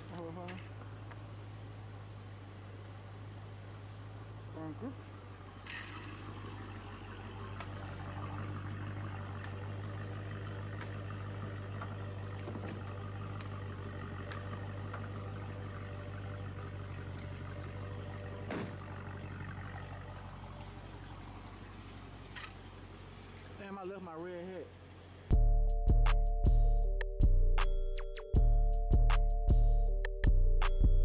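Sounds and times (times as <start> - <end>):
car engine idling: 0.0 - 31.0.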